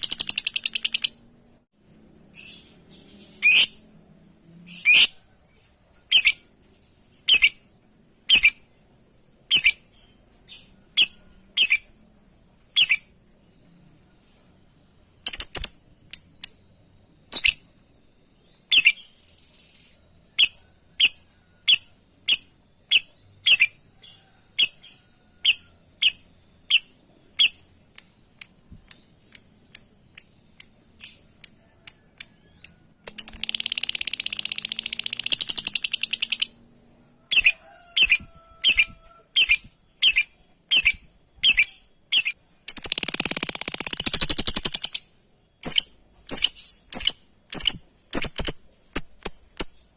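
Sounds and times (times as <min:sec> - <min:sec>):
lovebird chirping: 0:00.0 - 0:01.4, 0:02.2 - 0:04.0, 0:04.6 - 0:49.9
lovebird chattering: 0:25.5 - 0:36.6, 0:37.3 - 0:49.8.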